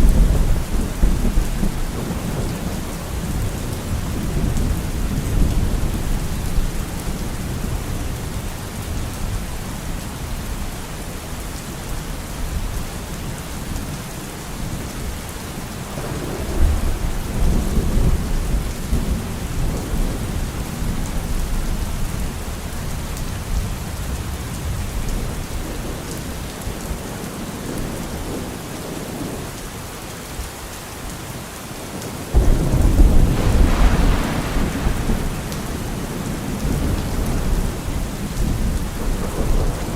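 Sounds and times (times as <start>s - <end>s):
thunder rumbling: 0.0s - 8.0s, 15.9s - 25.8s, 32.3s - 39.9s
steady rain: 0.0s - 39.9s
loud thunder clap: 32.4s - 39.9s.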